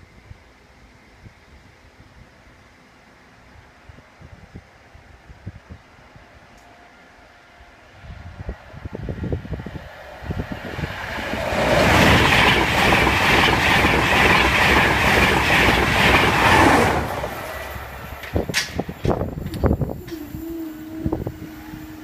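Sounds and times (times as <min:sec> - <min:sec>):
train wheels rumbling on rails: 0:07.9 - 0:22.0.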